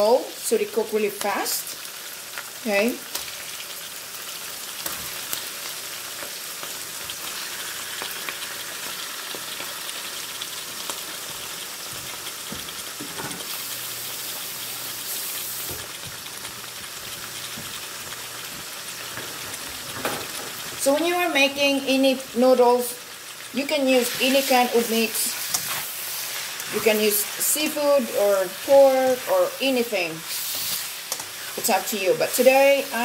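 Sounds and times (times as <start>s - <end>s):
chicken and onions sizzling in oil: 0.0s - 33.0s.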